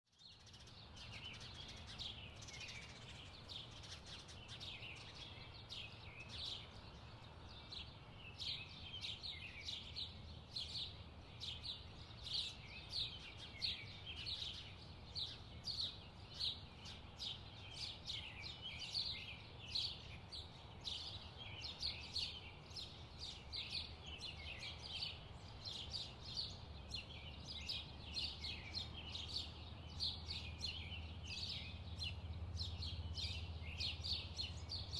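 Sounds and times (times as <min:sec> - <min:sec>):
birds chirping: 0:00.1 - 0:34.9.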